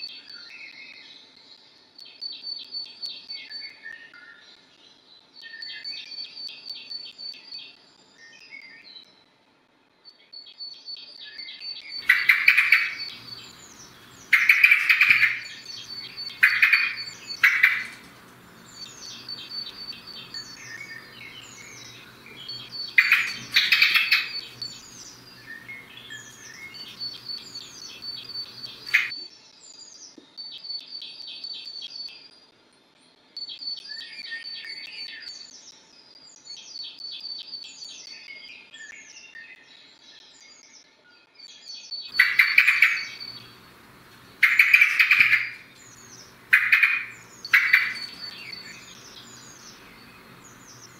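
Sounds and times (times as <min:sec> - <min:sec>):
songbirds singing: 0:11.2 - 0:29.2, 0:41.5 - 0:50.9
faint low hum: 0:12.0 - 0:29.1, 0:42.1 - 0:50.9
high bird trill: 0:12.0 - 0:29.1, 0:42.1 - 0:50.9
harsh bird calls: 0:12.0 - 0:29.2, 0:42.1 - 0:50.9.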